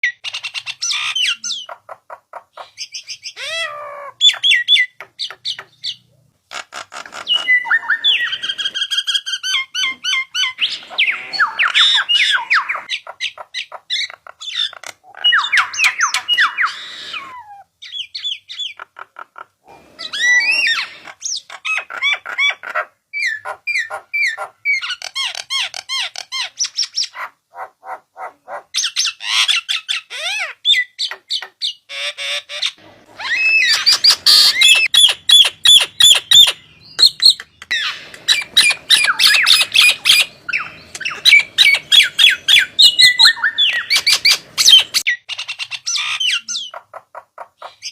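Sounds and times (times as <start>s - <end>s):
starling song: 32.8s - 45.1s.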